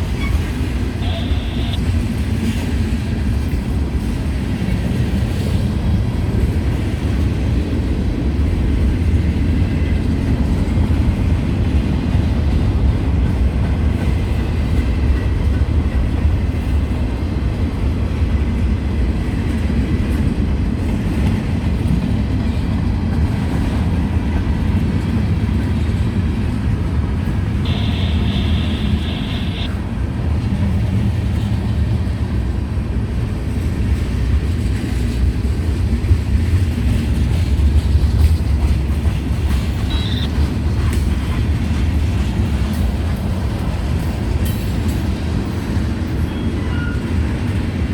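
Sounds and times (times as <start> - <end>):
freight train rumbling on rails: 0.0 - 47.9
high-pitched tone: 27.7 - 29.7.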